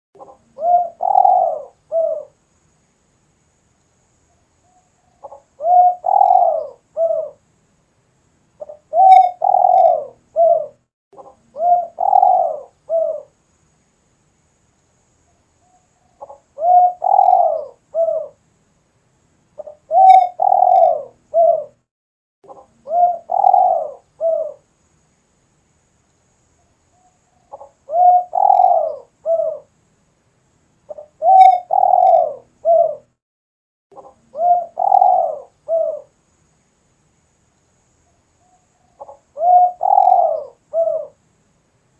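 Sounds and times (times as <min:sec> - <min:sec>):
dove cooing: 0:00.2 - 0:02.4, 0:05.1 - 0:07.4, 0:08.6 - 0:13.3, 0:16.1 - 0:18.4, 0:19.6 - 0:21.8, 0:22.5 - 0:24.6, 0:27.4 - 0:29.7, 0:30.9 - 0:33.1, 0:34.0 - 0:36.1, 0:38.9 - 0:41.2.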